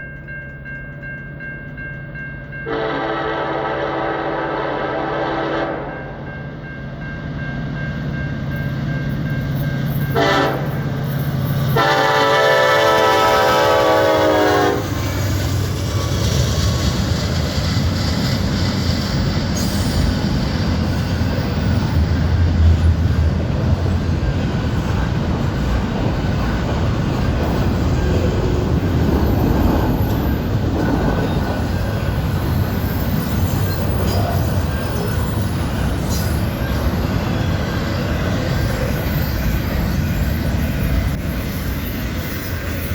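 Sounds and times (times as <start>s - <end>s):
diesel locomotive rumbling past: 0.0s - 42.9s
locomotive air horn blasts: 2.7s - 6.2s, 10.2s - 10.8s, 11.8s - 15.0s
train wheels clattering on rails: 7.0s - 42.9s.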